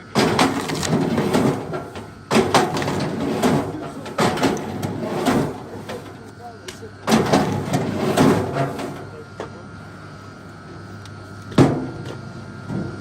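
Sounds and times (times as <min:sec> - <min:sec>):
rough scraping noise: 0:00.2 - 0:06.2, 0:07.2 - 0:09.1.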